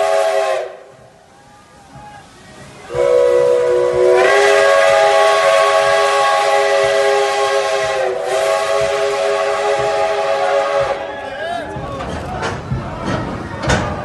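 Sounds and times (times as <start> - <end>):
steam locomotive whistle: 0.0 - 0.9, 2.9 - 11.3.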